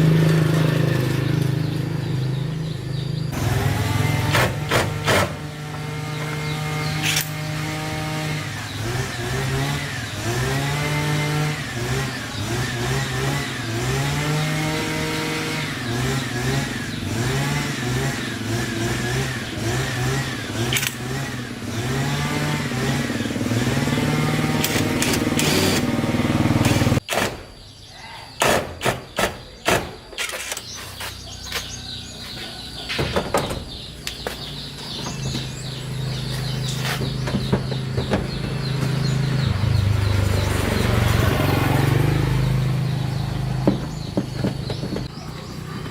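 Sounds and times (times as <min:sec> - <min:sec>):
vehicle engine revving: 0:00.0 - 0:27.1, 0:33.7 - 0:45.9
sharp knocks: 0:04.3 - 0:05.4, 0:43.6 - 0:45.1.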